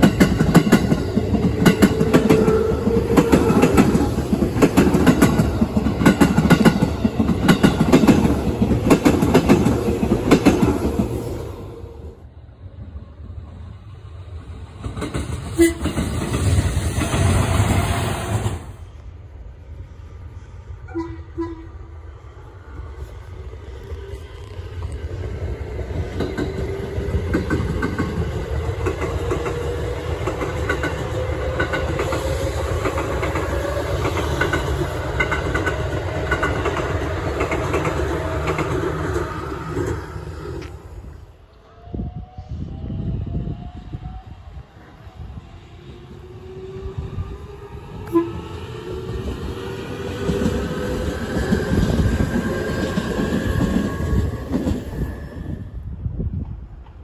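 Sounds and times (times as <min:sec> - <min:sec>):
train wheels clattering over rail joints: 0:00.0 - 0:11.1, 0:25.8 - 0:40.8
short train horn toots: 0:15.6 - 0:16.0, 0:20.9 - 0:21.8, 0:48.0 - 0:48.5.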